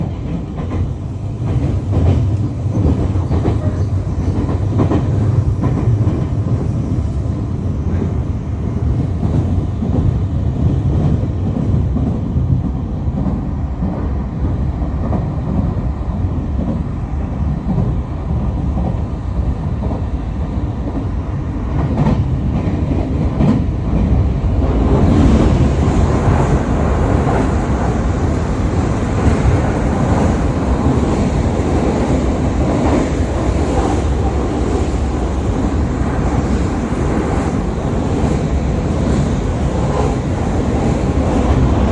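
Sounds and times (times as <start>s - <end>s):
train wheels clicking: 0.0s - 7.0s
train rumbling on rails: 0.0s - 41.9s.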